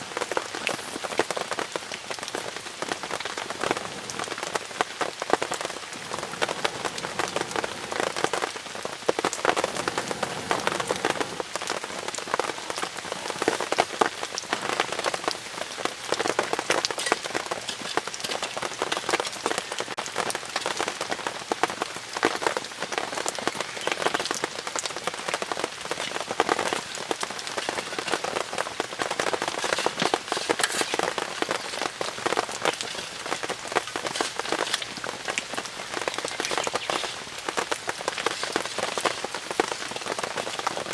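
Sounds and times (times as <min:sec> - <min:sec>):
rain pattering on tent fabric: 0:00.0 - 0:40.9.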